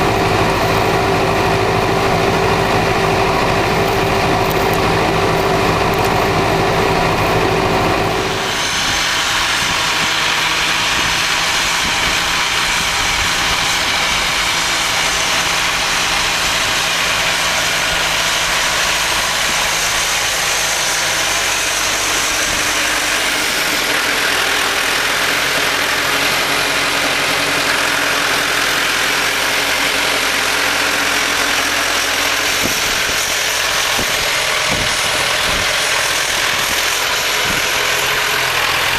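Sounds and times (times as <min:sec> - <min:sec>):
tractor diesel engine: 0:00.0 - 0:38.9.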